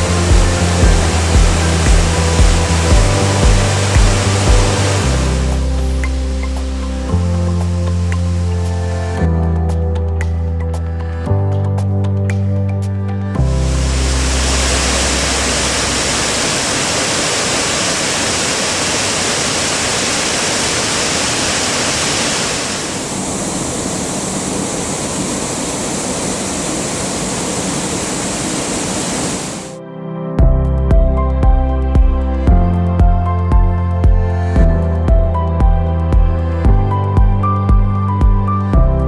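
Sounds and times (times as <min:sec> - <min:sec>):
waterfall rushing: 0:00.0 - 0:08.8, 0:13.6 - 0:29.8.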